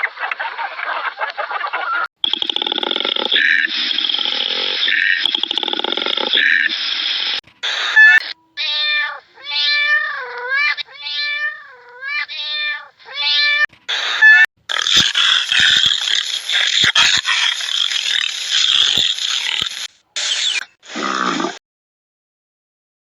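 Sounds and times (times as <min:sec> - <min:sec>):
cat meowing: 0:07.9 - 0:14.5.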